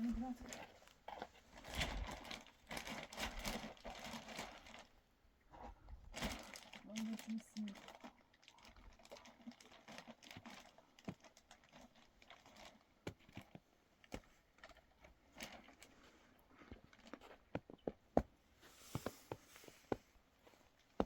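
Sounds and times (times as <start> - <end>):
clicks and knocks of objects handled: 10.0 - 16.0.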